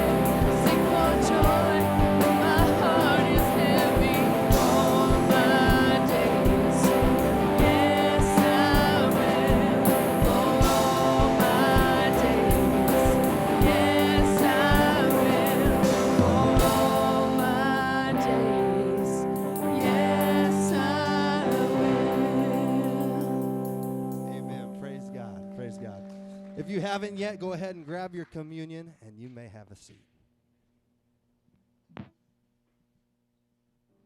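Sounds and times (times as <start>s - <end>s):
people singing: 0.0s - 24.4s
worship band playing: 0.0s - 28.9s.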